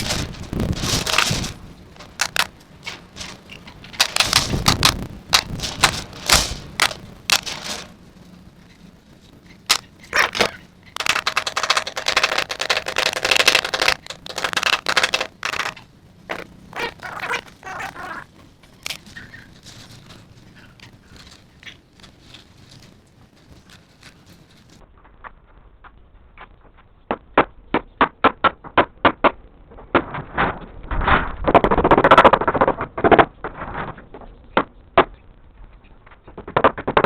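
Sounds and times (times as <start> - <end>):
metal mesh rattling: 0.0 - 8.2, 9.5 - 21.5
hand tool clicks and knocks: 9.7 - 17.3.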